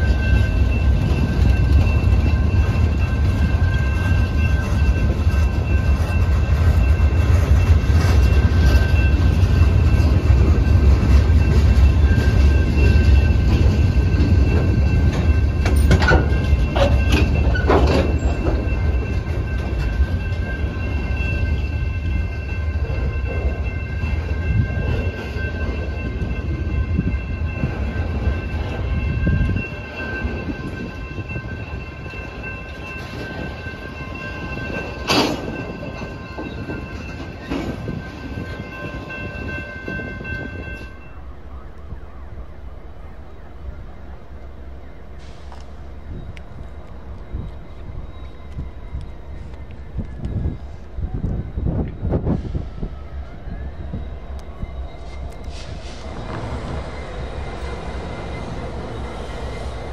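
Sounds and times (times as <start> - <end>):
wheels clanking over rails: 0.0 - 41.1
heavy low train rumble: 0.0 - 59.9
steady high ringing tones: 0.0 - 59.9.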